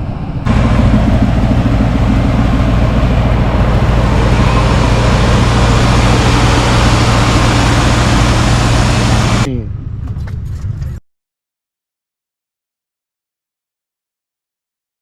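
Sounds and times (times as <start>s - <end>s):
road and wind noise: 0.0s - 11.0s
car engine humming: 0.5s - 10.9s.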